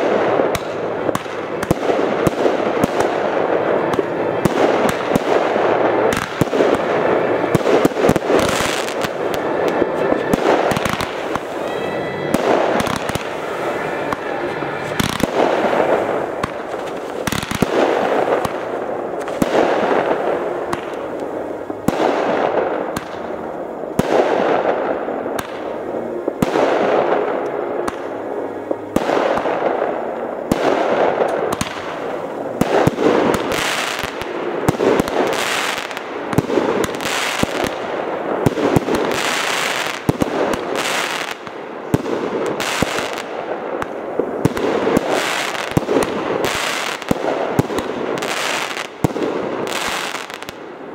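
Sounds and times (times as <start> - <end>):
crackling shell bursts: 0.0 - 23.5
fireworks bangs: 0.0 - 50.9.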